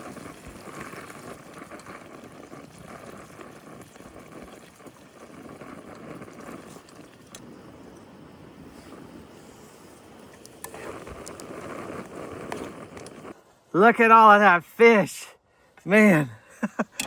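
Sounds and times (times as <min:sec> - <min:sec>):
fish sizzling in a pan: 0:00.0 - 0:13.4.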